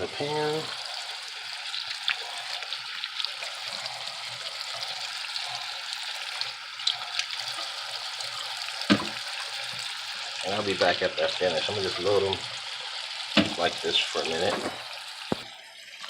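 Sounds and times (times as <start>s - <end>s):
tap running into sink: 8.8s - 9.8s, 13.3s - 15.5s.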